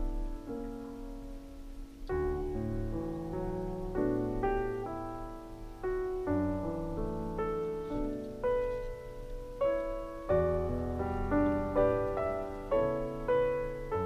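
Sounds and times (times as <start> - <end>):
slow gentle piano melody: 0.0 - 14.0.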